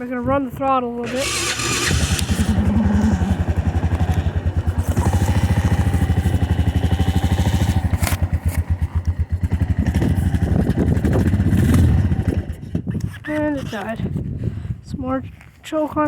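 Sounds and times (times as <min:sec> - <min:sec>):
atv engine running: 0:01.0 - 0:13.0.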